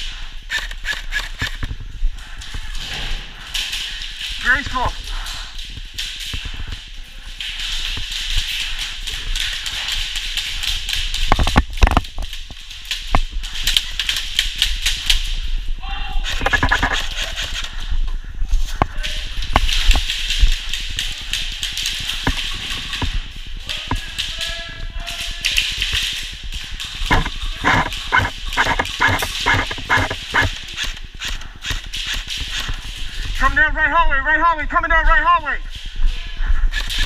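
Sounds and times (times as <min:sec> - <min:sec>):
airsoft guns shooting: 0:25.1 - 0:33.0.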